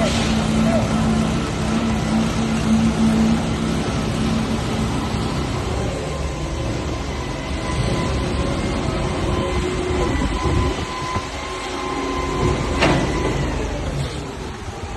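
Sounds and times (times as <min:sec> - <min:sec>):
construction machinery rumble: 0:00.0 - 0:14.9.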